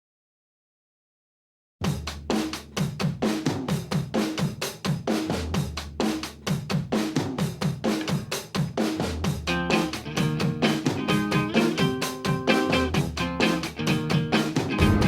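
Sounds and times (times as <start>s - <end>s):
drum kit groove: 1.8s - 15.0s
low bass line: 14.8s - 15.0s.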